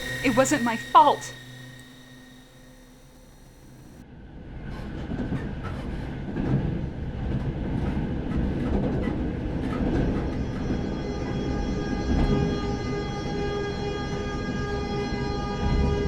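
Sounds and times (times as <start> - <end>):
train rumbling on rails: 4.8 - 10.8.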